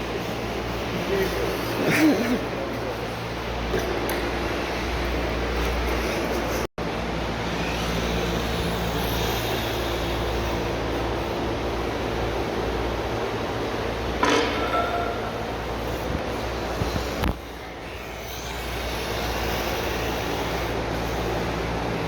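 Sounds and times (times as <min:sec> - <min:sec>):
electric rc cars motor hum: 0:00.0 - 0:13.8, 0:15.8 - 0:22.0.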